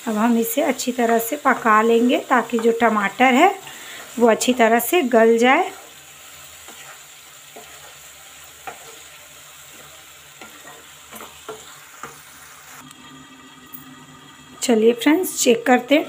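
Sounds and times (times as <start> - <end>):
masala sizzling in a pan: 0.0 - 16.0
spatula tapping and scraping pan: 1.0 - 3.0, 6.6 - 12.2.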